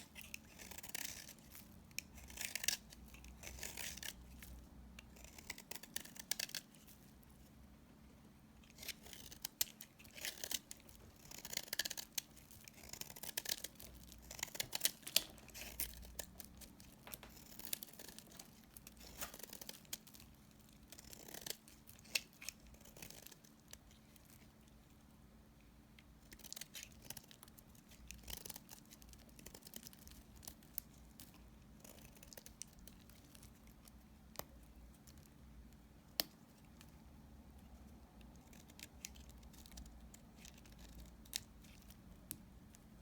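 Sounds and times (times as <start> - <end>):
soap being cut crunching: 0.2 - 4.5.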